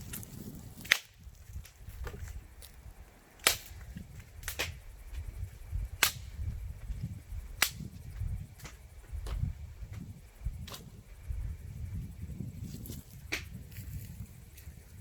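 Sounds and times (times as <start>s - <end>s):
axe splitting firewood: 0.0s - 2.4s.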